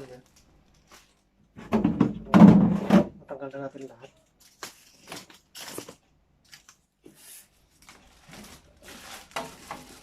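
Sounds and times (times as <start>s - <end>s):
packaging rustling and tearing: 4.2s - 10.0s.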